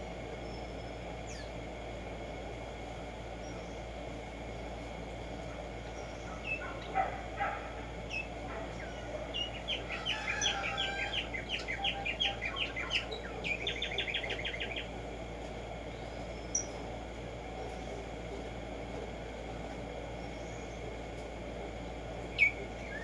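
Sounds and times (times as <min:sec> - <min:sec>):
sparrow singing chirps and trill: 0:08.1 - 0:14.9, 0:22.3 - 0:23.0.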